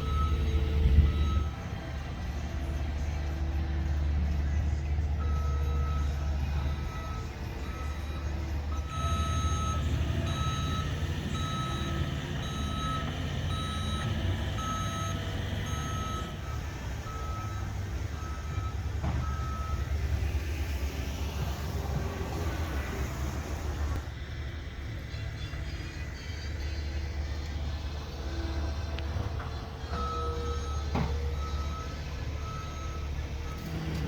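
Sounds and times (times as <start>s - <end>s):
reversing alarm beeping: 0.0s - 3.1s, 4.2s - 20.4s, 29.5s - 34.0s
diesel engine rumble: 0.0s - 34.0s.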